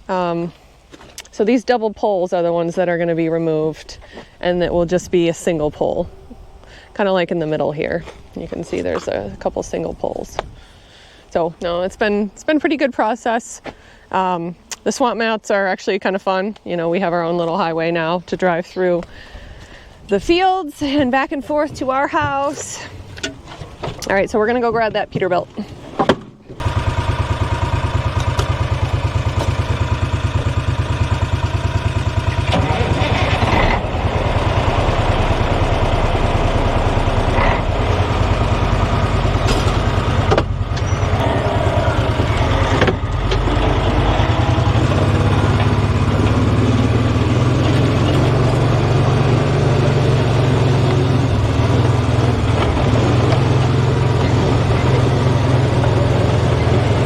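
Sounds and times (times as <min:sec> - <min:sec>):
engine knocks: 0:26.0 - 0:57.0
truck engine running: 0:26.5 - 0:57.0.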